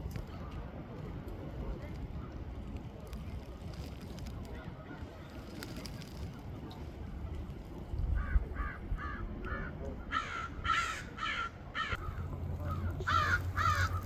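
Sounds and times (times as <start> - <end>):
birds harsh calls: 8.2 - 14.0.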